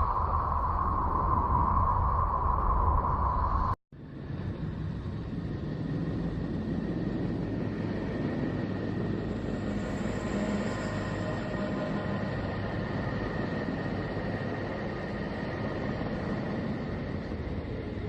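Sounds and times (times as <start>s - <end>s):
faint high steady tone: 0.0s - 3.8s
low rumbling drone: 0.0s - 17.2s.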